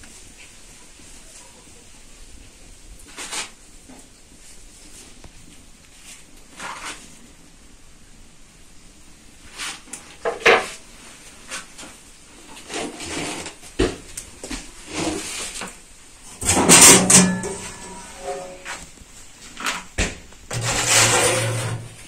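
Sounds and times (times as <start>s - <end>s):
steady background hiss: 0.0s - 22.0s
metal baking tray being handled: 16.3s - 18.9s, 20.5s - 22.0s
metallic clank ringing: 16.4s - 18.8s.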